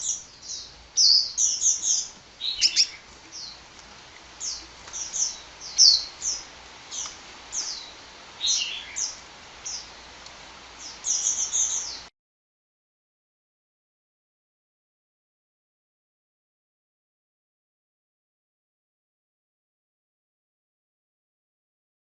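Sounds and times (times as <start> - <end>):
bird chirping: 0.0 - 3.7, 4.4 - 10.2, 10.8 - 12.1.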